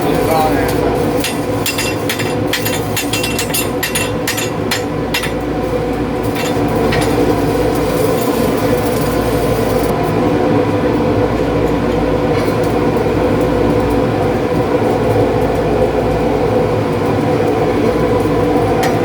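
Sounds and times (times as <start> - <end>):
welding arc crackling: 0.0 - 19.0
welding machine hum: 0.0 - 19.0.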